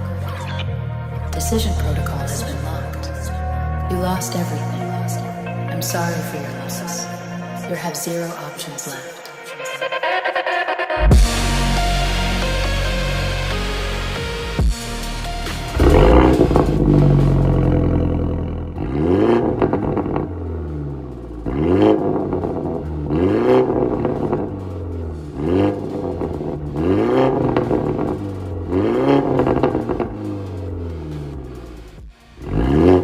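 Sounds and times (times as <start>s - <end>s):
car engine revving: 10.2s - 33.0s.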